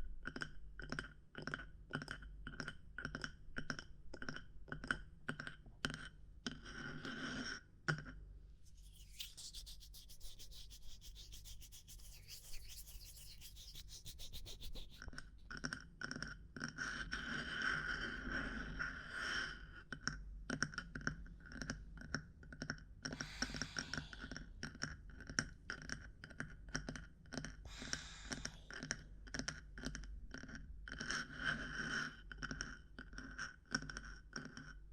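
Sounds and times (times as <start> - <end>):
fast scratching ticks: 8.7 - 15.3.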